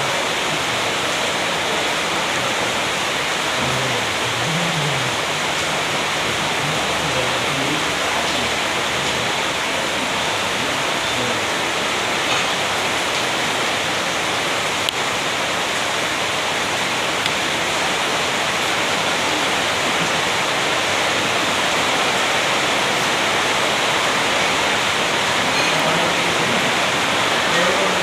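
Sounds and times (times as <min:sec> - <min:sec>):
steady rushing noise: 0:00.0 - 0:28.0.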